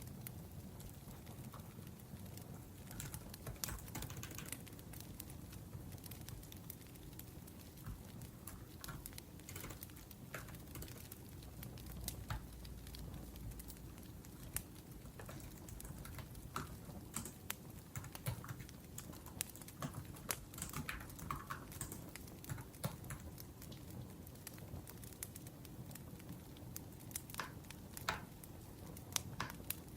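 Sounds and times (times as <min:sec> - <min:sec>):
wood fire crackling: 0:00.0 - 0:29.9
laptop keyboard typing: 0:02.8 - 0:04.8, 0:07.6 - 0:11.2, 0:15.2 - 0:23.3.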